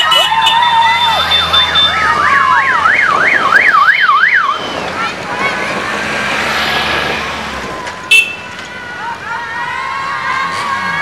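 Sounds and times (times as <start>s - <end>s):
electronic siren yelping: 0.0s - 4.6s
outdoor noise: 0.0s - 11.0s.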